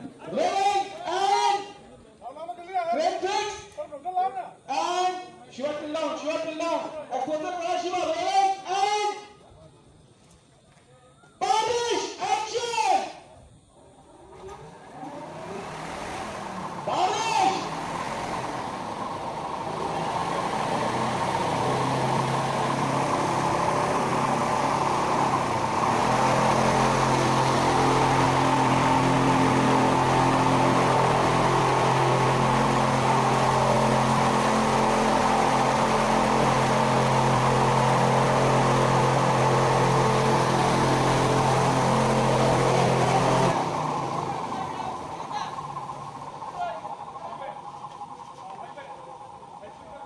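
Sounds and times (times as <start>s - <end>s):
motor drone: 14.3s - 49.9s
spraying water hiss: 14.4s - 46.6s.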